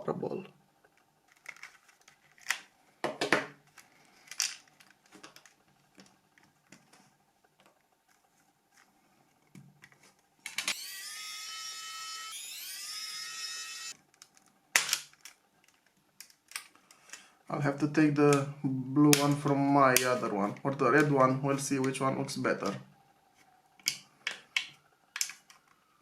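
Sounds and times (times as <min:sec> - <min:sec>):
plastic parts clicking: 0:00.9 - 0:07.0, 0:14.1 - 0:17.2, 0:23.8 - 0:25.8
small electric motor whirring: 0:10.6 - 0:14.0.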